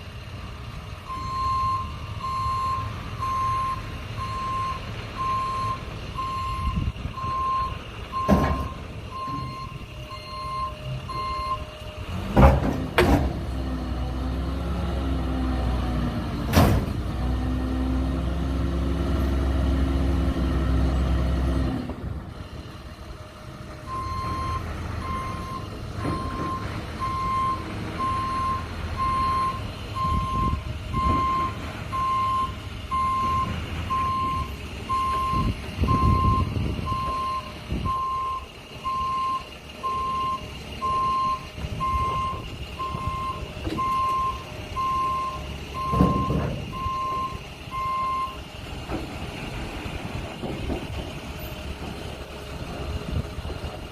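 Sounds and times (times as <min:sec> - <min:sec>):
truck engine running: 0:00.0 - 0:53.9
reverse alarm beeping: 0:01.1 - 0:11.8, 0:23.9 - 0:48.4.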